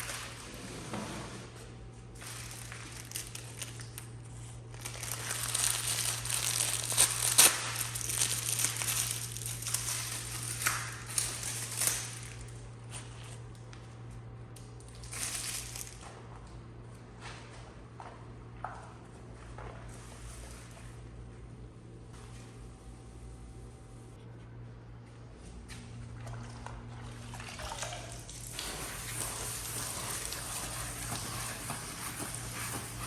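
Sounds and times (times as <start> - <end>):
steady low hum: 0.0 - 33.0
plastic crinkling: 2.1 - 12.6, 14.8 - 16.1.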